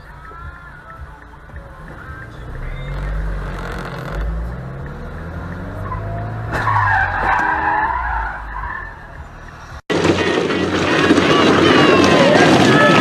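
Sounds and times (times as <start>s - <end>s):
car engine running: 0.0s - 12.0s
tyres squealing in a skid: 5.8s - 9.1s, 9.9s - 13.0s.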